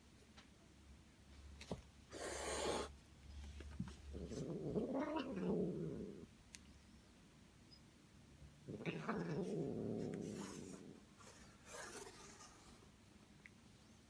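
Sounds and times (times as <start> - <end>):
cat hissing: 2.1 - 2.9, 8.7 - 12.8.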